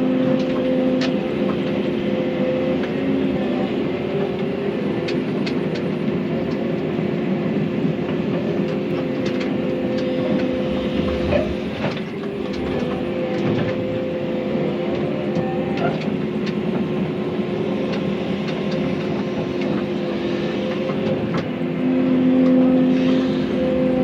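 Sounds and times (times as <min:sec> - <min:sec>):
excavator engine drone: 0:00.0 - 0:24.0
clanks and rattles: 0:10.3 - 0:13.8.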